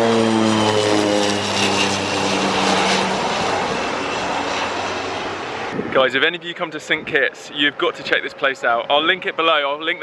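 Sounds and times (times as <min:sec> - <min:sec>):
passing engine droning: 0:00.0 - 0:06.0
steady rushing noise: 0:01.3 - 0:10.0.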